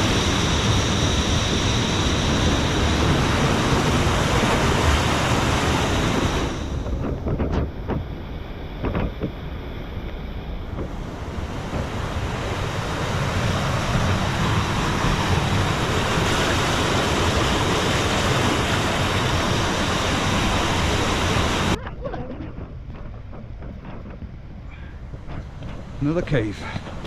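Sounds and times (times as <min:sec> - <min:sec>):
rushing water: 0:00.0 - 0:06.9, 0:08.2 - 0:21.8.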